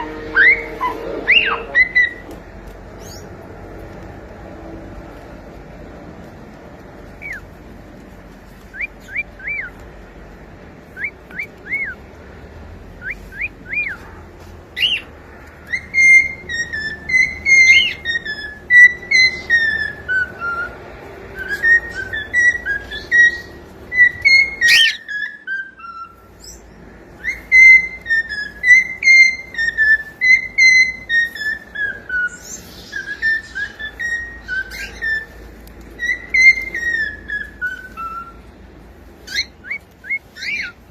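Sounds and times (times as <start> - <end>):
cockatiel whistling: 0.0 - 2.4, 8.7 - 9.7, 11.0 - 12.0, 13.0 - 14.0, 14.8 - 26.6, 27.2 - 38.4, 39.2 - 40.8.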